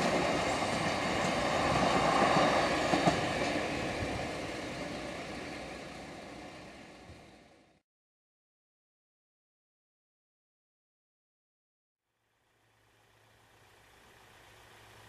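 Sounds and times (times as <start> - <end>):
train wheel clacks: 0.0 - 5.4
freight train rumbling: 0.0 - 7.8.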